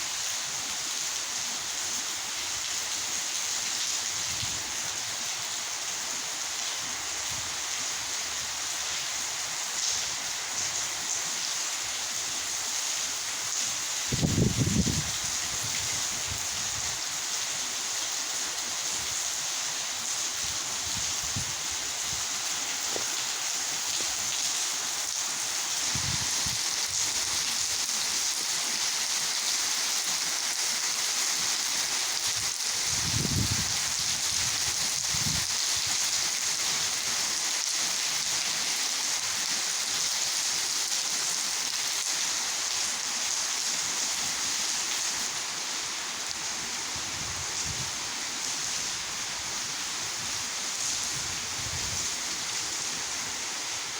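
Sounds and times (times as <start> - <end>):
heavy rain pouring: 0.0 - 53.9
wind buffeting microphone: 14.1 - 17.0, 25.9 - 27.4, 32.4 - 35.5, 51.1 - 52.1.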